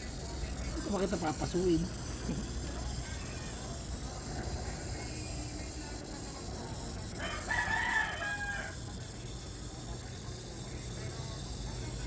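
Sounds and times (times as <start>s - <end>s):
rooster crowing: 7.2s - 8.8s.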